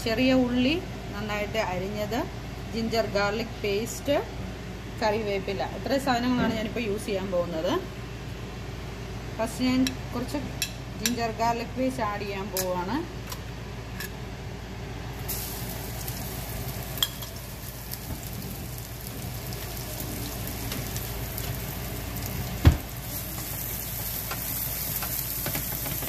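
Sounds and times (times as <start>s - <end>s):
paste sizzling in hot oil: 15.2s - 26.0s.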